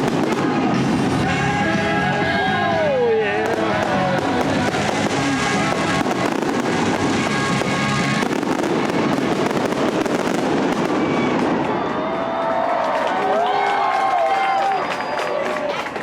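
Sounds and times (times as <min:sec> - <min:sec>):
music soundtrack: 0:00.0 - 0:11.6
fireworks bangs and crackles: 0:00.0 - 0:12.4.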